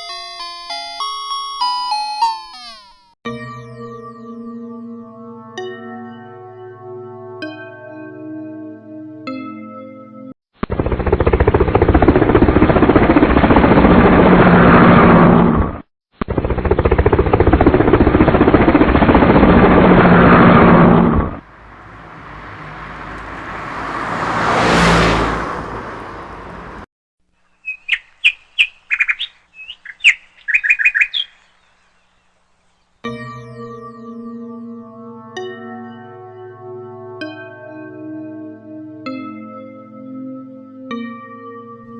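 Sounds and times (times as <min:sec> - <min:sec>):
loud rough noise: 0:10.7 - 0:22.2
short bird chirps: 0:27.5 - 0:32.9.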